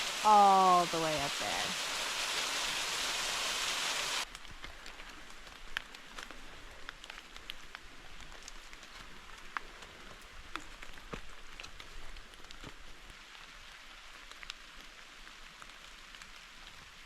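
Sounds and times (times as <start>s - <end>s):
waterfall rushing: 0.0s - 4.2s.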